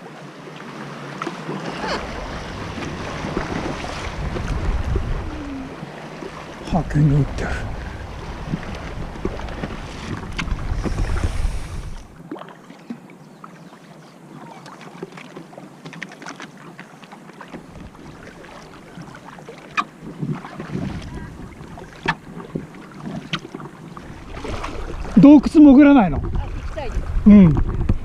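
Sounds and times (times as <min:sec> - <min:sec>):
water splashing from paddling: 0:00.0 - 0:28.0
wind buffeting microphone: 0:01.9 - 0:12.2, 0:20.0 - 0:22.7, 0:24.0 - 0:28.0.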